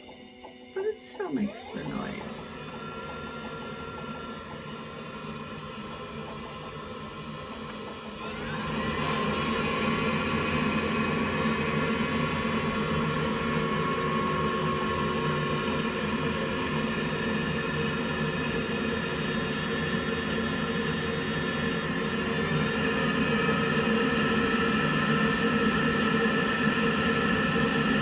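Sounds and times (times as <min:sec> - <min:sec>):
water heater humming: 0:00.0 - 0:17.1.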